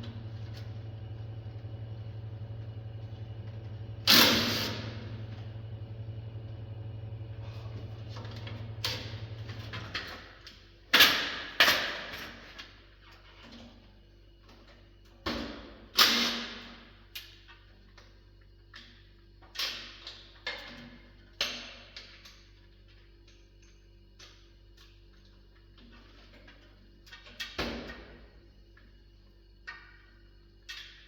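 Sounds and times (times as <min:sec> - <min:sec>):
low machine hum: 0:00.0 - 0:11.4.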